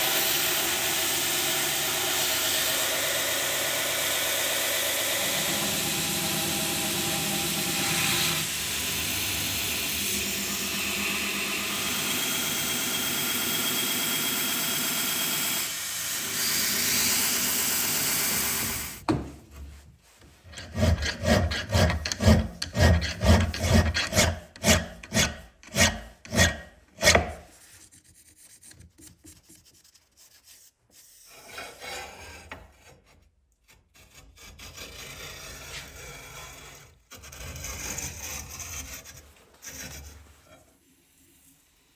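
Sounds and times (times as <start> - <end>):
belt grinder grinding steel: 0.0 - 19.0, 20.5 - 27.4
hand-tool strokes on steel: 20.0 - 28.0.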